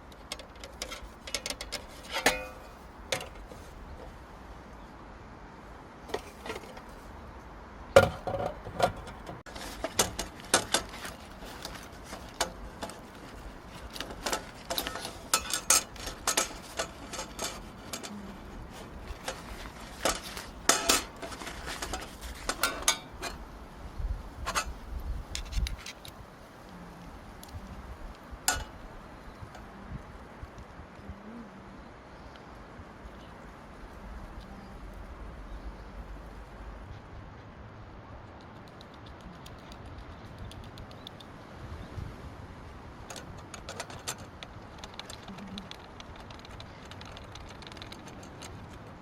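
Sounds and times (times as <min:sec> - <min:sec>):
clinks and taps of objects: 0:19.0 - 0:23.4, 0:28.5 - 0:28.7.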